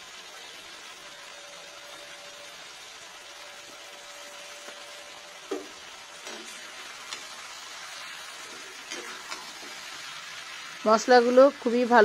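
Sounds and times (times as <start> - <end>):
chicken frying in hot oil: 0.0 - 12.0
spatula stirring food: 3.4 - 10.8
spatula knocking on pan: 5.5 - 6.5.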